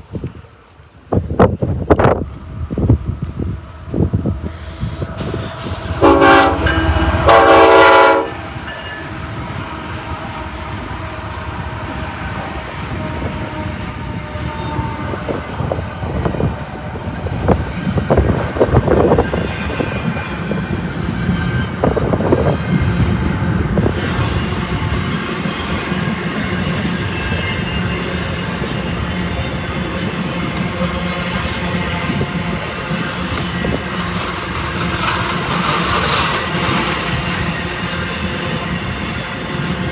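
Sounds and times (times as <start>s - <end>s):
train rumbling past: 0.0s - 39.9s
train horn blasts: 3.4s - 16.5s
wheels clacking over rails: 23.7s - 39.9s.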